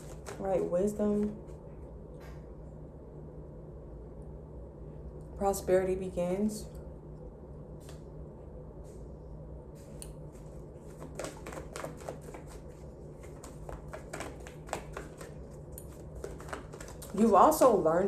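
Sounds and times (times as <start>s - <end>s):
cards being shuffled: 0.0s - 1.5s, 10.3s - 17.4s
low steady hum: 0.0s - 18.0s.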